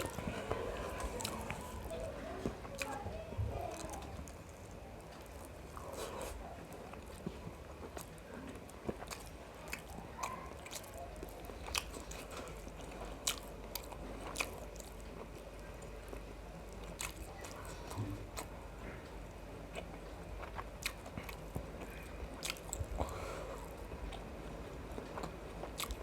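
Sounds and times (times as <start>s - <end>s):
small crunches: 0.0s - 16.2s
wet chewing: 0.0s - 26.0s.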